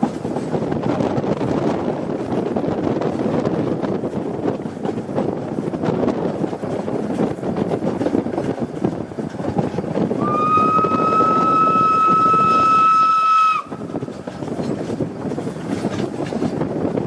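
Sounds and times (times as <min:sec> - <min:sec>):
wind noise on microphone: 0:00.0 - 0:17.0
steam locomotive whistle: 0:10.2 - 0:13.9.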